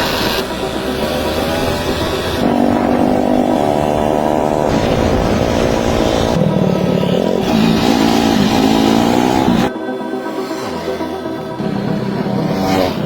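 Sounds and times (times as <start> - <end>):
scooter engine revving: 0.0 - 13.0.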